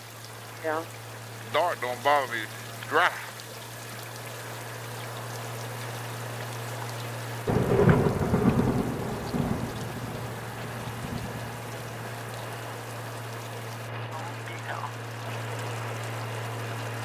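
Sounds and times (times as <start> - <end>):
rain hissing: 0.0 - 17.0
thunder rumbling: 7.5 - 12.4.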